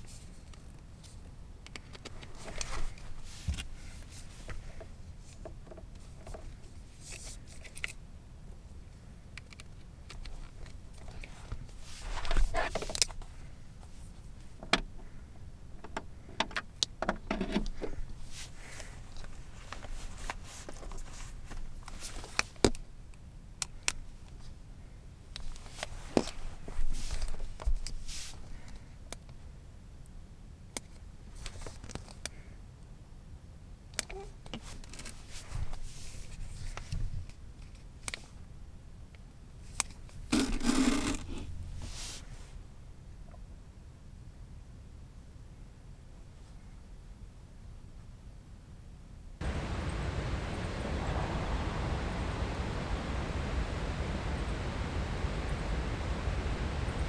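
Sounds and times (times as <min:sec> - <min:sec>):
rustling: 0:00.0 - 0:15.3, 0:17.3 - 0:22.8, 0:25.4 - 0:28.9, 0:34.1 - 0:38.4, 0:39.6 - 0:42.8
steady low hum: 0:39.7 - 0:44.4, 0:49.4 - 0:57.0
short scrapes: 0:40.3 - 0:42.6.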